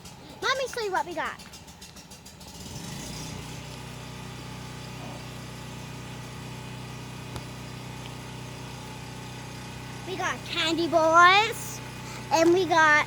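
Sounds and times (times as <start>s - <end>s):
motor humming: 3.0s - 13.0s.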